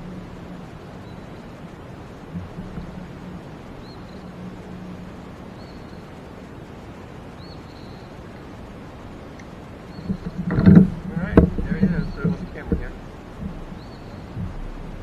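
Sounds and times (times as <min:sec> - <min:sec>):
background hiss: 0:00.0 - 0:15.0
low hum: 0:00.0 - 0:15.0
soft knocks: 0:10.0 - 0:13.8.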